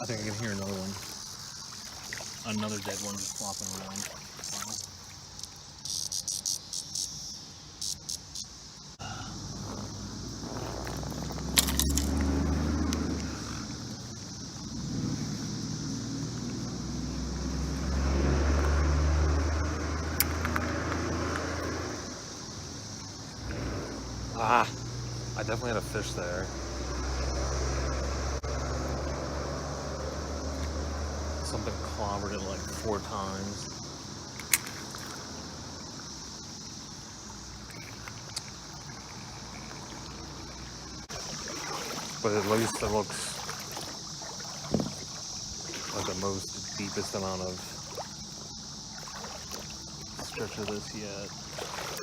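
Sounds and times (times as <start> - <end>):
creek water rushing: 0.0 - 5.7, 34.4 - 52.0
cicadas chorus: 0.0 - 52.0.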